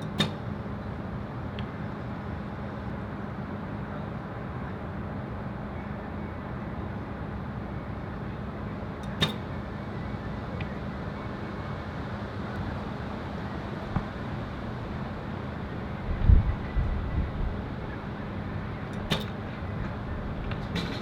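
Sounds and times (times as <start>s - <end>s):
sharp snap: 9.0s - 9.5s, 18.9s - 19.4s
wind buffeting microphone: 13.9s - 21.0s.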